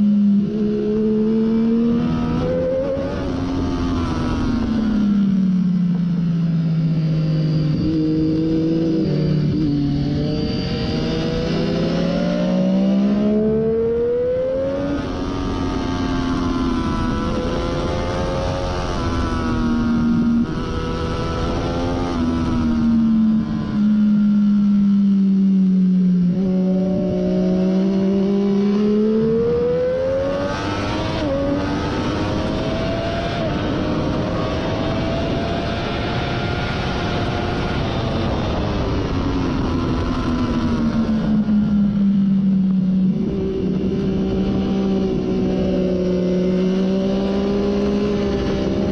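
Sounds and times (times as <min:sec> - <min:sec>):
motorcycle engine at high revs: 0:00.0 - 0:48.9
wind rush: 0:26.4 - 0:48.9.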